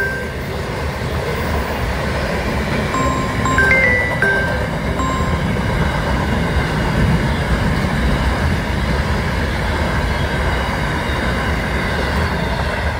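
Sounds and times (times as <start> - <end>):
train wheels rumbling on rail: 4.4 - 12.9.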